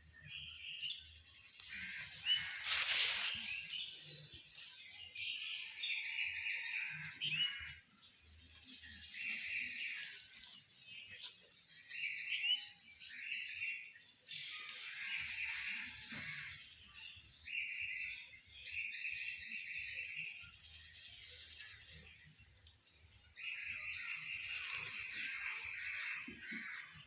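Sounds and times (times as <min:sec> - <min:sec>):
birds chirping: 0:00.0 - 0:27.0
steady high hiss: 0:01.4 - 0:04.5.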